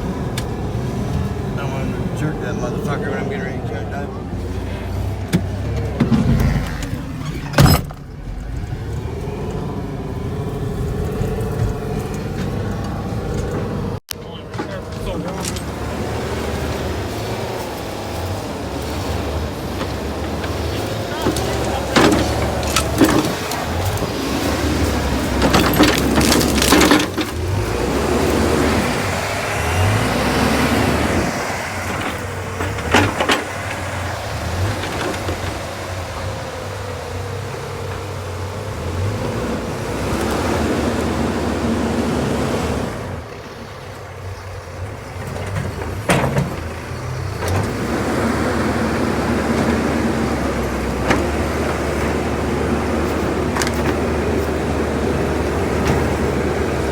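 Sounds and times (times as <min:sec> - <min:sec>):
truck engine revving under load: 0:00.0 - 0:56.9
sharp knocks and clunks: 0:05.1 - 0:08.5, 0:11.5 - 0:30.1, 0:31.1 - 0:36.3, 0:45.2 - 0:56.9.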